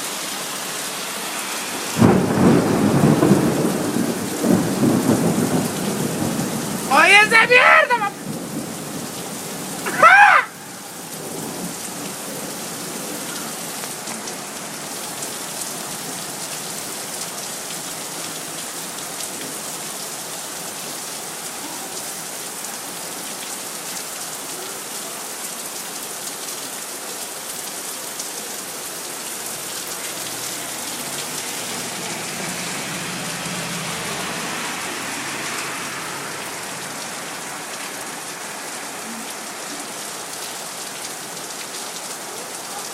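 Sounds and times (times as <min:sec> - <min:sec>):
steady rain falling: 0:00.0 - 0:42.9
loud voice-like call: 0:06.9 - 0:08.2, 0:09.9 - 0:10.7.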